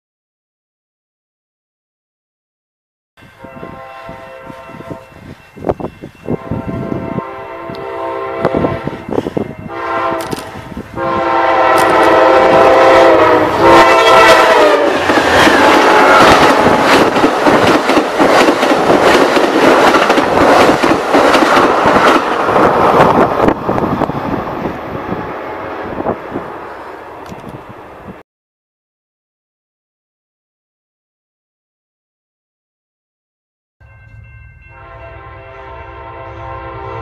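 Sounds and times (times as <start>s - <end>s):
train horn blasts: 3.2s - 5.4s, 6.2s - 17.1s, 33.8s - 37.0s
train wheels rushing and clacking: 10.1s - 10.9s, 11.6s - 12.6s, 13.2s - 25.2s.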